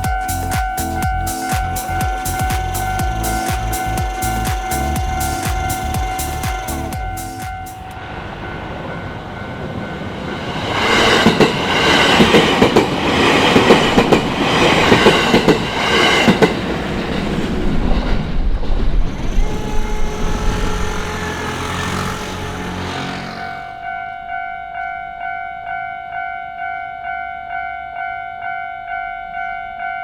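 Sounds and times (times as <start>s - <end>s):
train wheels clickety-clack: 0.0s - 8.0s, 10.0s - 23.6s
electric train passing: 0.0s - 28.1s.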